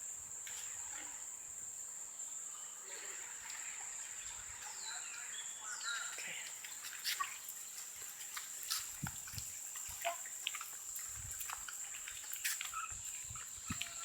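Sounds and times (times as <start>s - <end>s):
faint bird chirps: 2.4s - 7.8s, 12.4s - 14.0s
wet mud squelches: 6.2s - 14.0s.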